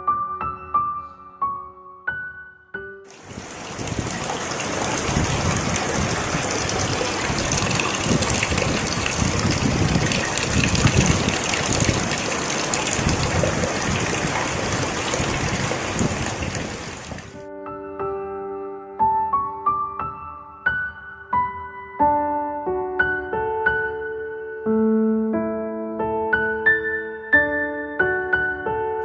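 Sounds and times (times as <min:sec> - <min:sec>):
heavy rain pouring: 0:03.1 - 0:17.4.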